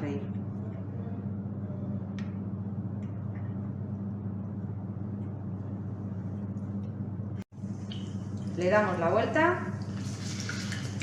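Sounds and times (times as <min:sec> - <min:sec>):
constant low hum: 0:00.0 - 0:11.0
bread frying in hot oil: 0:07.5 - 0:11.0.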